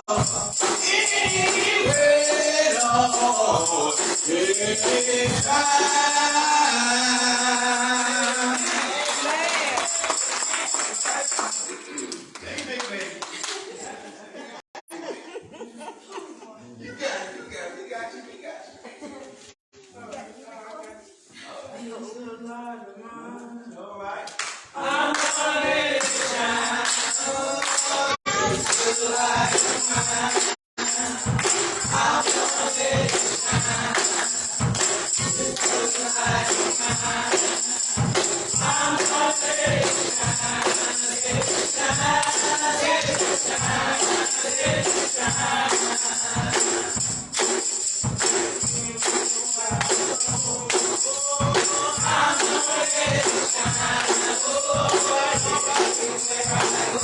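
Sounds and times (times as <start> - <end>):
gospel choir singing: 0.0 - 12.0, 24.6 - 57.0
tambourine beaten fast: 0.0 - 12.1, 25.2 - 57.0.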